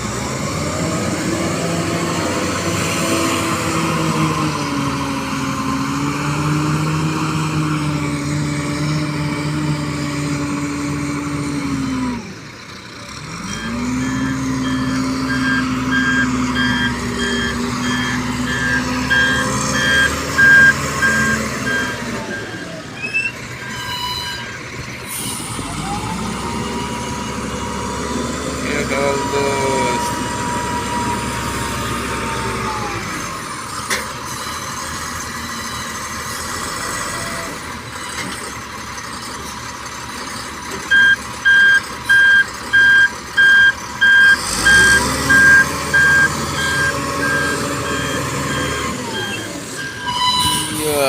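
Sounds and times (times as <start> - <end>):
truck engine running: 0.0 - 51.0
reversing alarm beeping: 13.4 - 24.6, 40.9 - 51.0.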